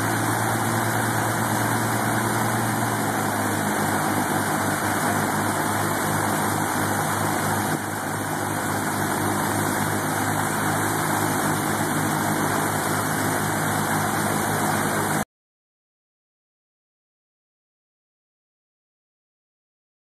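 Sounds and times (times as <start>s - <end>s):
aircraft piston engines droning: 0.0s - 15.2s.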